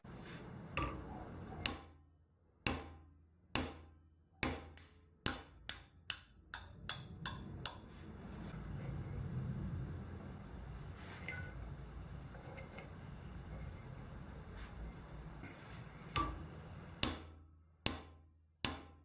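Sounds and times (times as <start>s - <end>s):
sharp ringing knocks: 16.0s - 17.3s.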